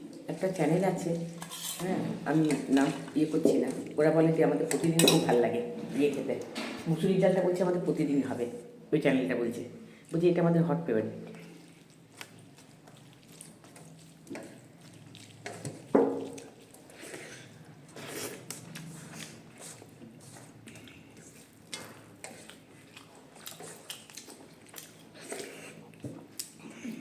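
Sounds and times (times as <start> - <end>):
chewing and wet mouth noises: 11.2 - 27.0.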